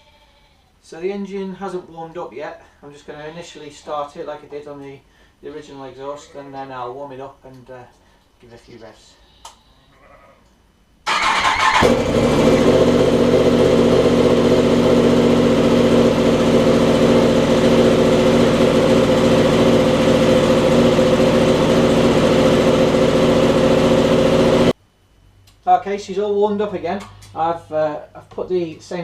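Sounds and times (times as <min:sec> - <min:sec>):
engine starter cranking: 0:11.1 - 0:12.3
motorcycle engine idling: 0:11.2 - 0:24.7.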